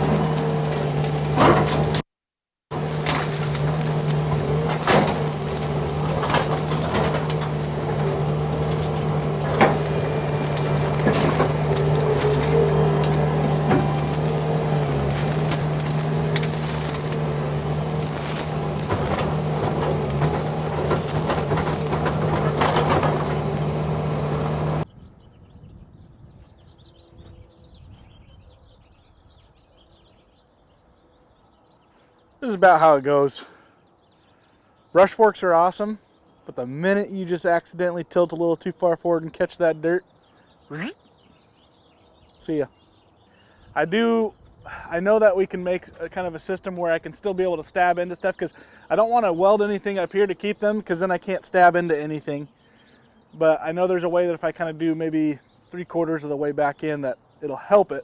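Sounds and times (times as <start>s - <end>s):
tractor engine running: 0.0s - 2.0s, 2.7s - 24.9s
wood cracking and snapping: 0.0s - 2.0s, 2.7s - 24.8s
birds chirping: 2.7s - 58.0s.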